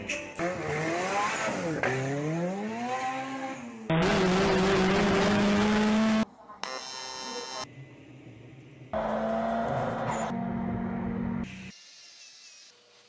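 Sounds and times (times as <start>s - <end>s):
car engine revving: 0.4s - 6.3s, 8.9s - 11.5s.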